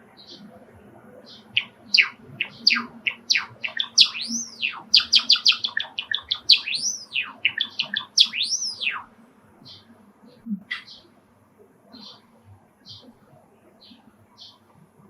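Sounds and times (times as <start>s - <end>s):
sparrow clicking chirping song: 1.3s - 9.1s.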